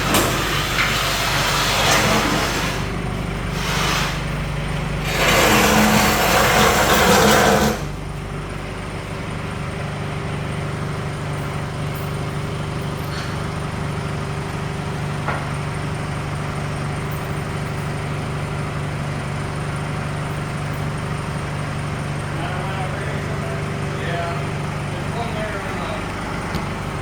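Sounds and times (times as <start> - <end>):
low motor hum: 0.0 - 27.0
loud rushing hiss: 3.5 - 4.3.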